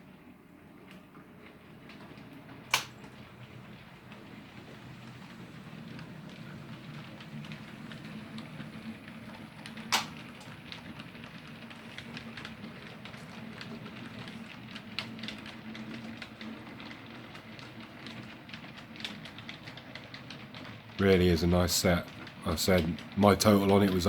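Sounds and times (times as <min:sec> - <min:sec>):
wheels clicking on track: 0:00.0 - 0:24.0
sharp click: 0:02.7 - 0:03.0, 0:09.9 - 0:10.1.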